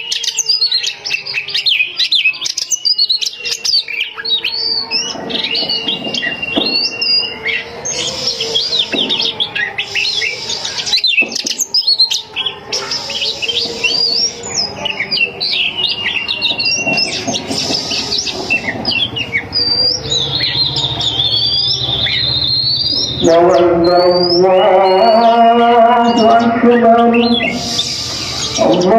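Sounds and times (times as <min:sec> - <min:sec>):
songbird whistles and trills: 0:00.0 - 0:28.9
man chanting call to prayer: 0:23.0 - 0:28.9.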